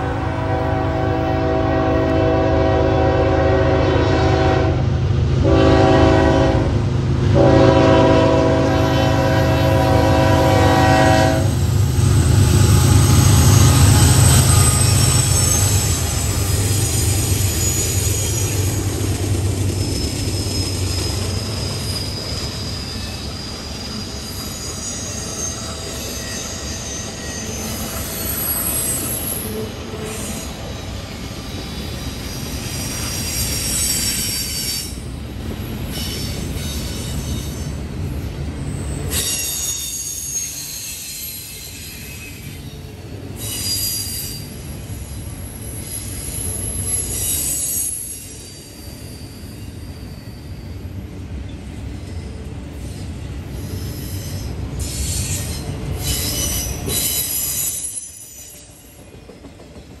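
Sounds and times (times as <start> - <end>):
freight train wheels rumbling: 0.0 - 60.0
high-pitched wheel squeal: 9.6 - 35.0, 38.6 - 42.8, 43.4 - 51.0, 52.8 - 59.0.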